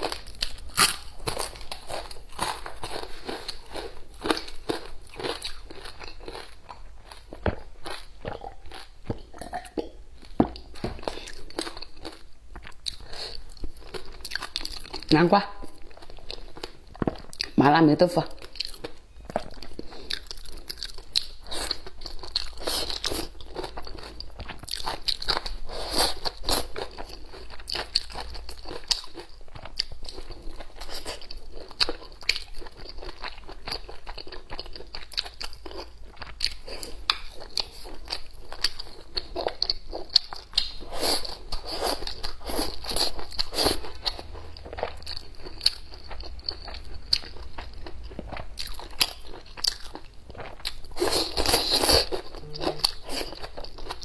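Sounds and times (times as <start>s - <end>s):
chewing crunchy food: 0.0s - 17.6s, 18.4s - 54.0s.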